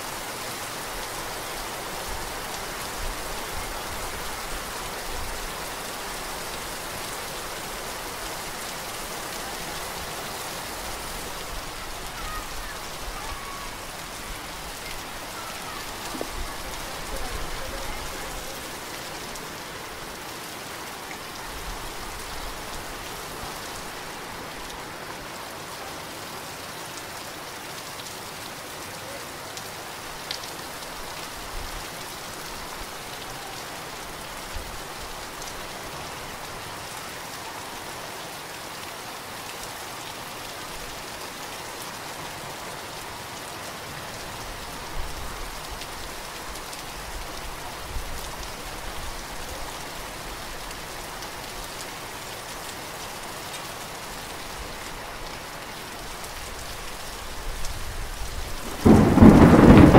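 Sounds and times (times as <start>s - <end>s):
heavy rain falling: 0.0s - 59.9s
sharp raindrop hits: 58.6s - 59.9s.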